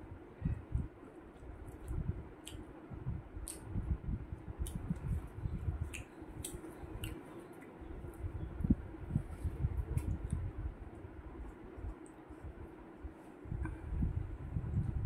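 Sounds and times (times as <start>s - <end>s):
mouth clicks and lip smacks: 1.3s - 2.7s, 3.4s - 3.8s, 4.6s - 5.2s, 5.8s - 7.7s.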